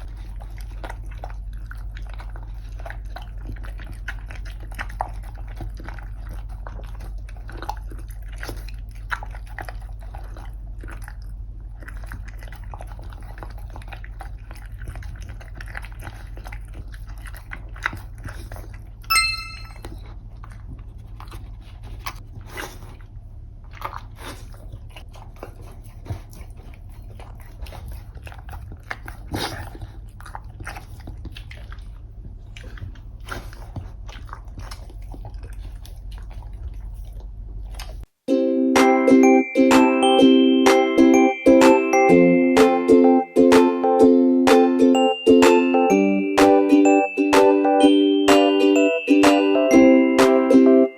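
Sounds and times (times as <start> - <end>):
dog crunching and chewing food: 0.0 - 38.1
high-pitched tone: 19.1 - 19.9, 38.3 - 50.9.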